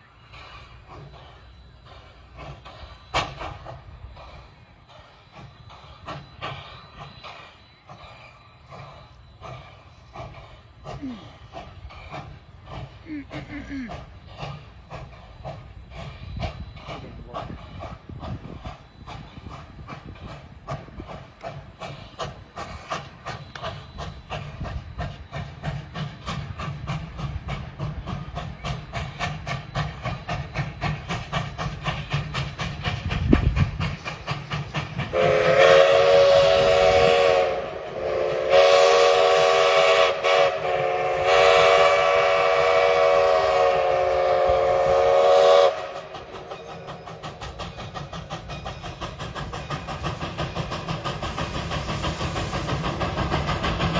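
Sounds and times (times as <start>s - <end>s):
steam locomotive chuffing: 0.0s - 53.9s
steam whistle blasts: 35.1s - 46.5s.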